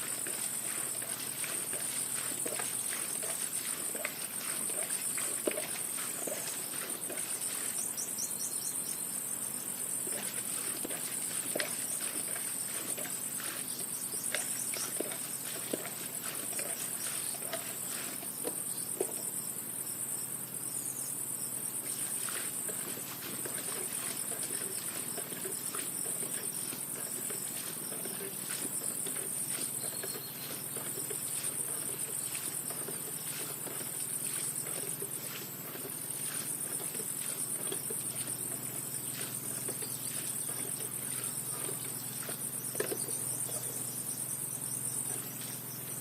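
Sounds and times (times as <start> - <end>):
crickets chirping: 0.0 - 46.0
small knocks and rustles: 21.9 - 43.8.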